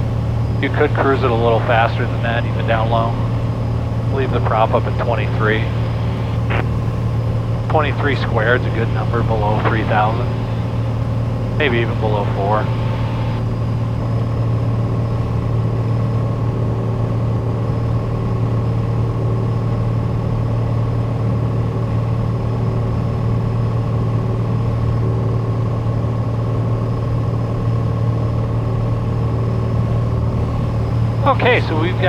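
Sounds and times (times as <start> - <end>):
airplane cabin engine drone: 0.0 - 19.9, 28.1 - 32.0.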